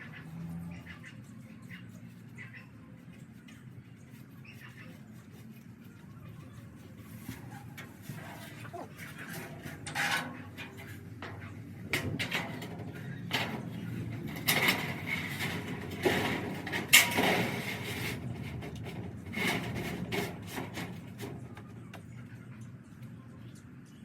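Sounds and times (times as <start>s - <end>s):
hard objects knocking and clanking: 9.3s - 22.1s.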